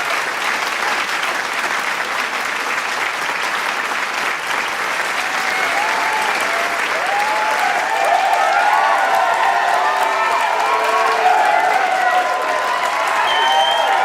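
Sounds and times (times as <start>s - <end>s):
crowd applauding: 0.0s - 14.0s
crowd shouts and whoops: 5.2s - 14.0s.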